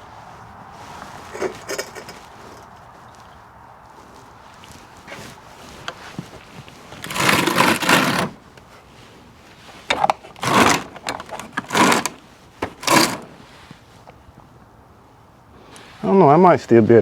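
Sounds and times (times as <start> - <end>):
objects rattling and scraping: 0.7 - 3.1, 5.1 - 13.8.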